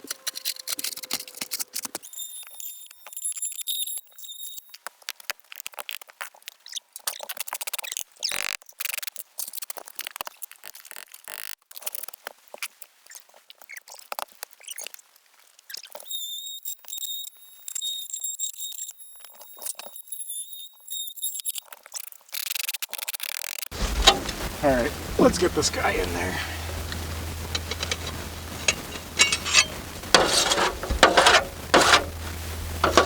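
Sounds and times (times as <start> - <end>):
roof shingles crackling and scraping: 23.7 - 33.0.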